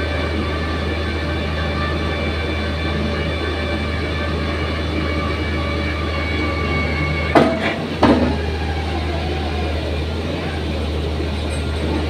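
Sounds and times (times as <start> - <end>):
excavator engine running: 0.0 - 12.0
loud metal clanks: 7.3 - 8.6.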